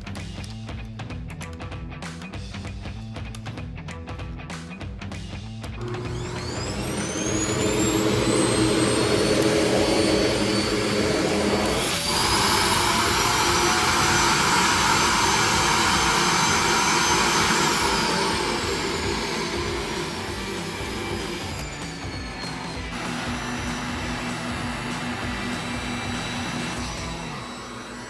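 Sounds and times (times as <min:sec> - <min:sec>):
vacuum cleaner motor whining: 0:05.8 - 0:28.0.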